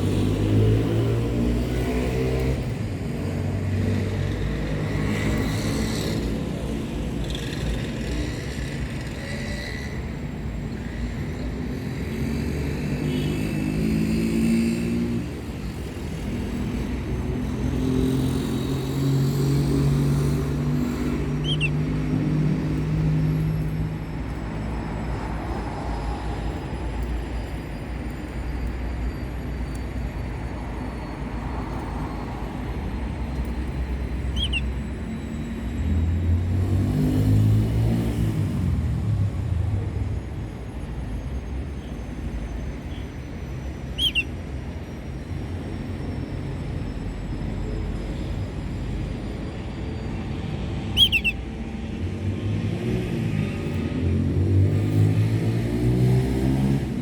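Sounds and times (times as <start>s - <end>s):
vehicle engines passing: 0.0s - 57.0s
brief high chirps: 44.0s - 44.3s, 51.0s - 51.4s.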